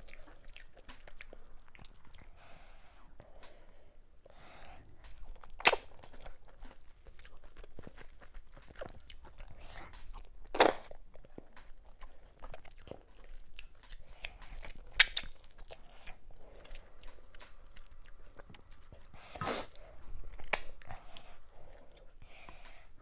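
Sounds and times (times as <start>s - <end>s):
person chewing food: 0.0s - 3.7s, 4.6s - 23.0s
wet mouth clicks: 14.2s - 15.4s.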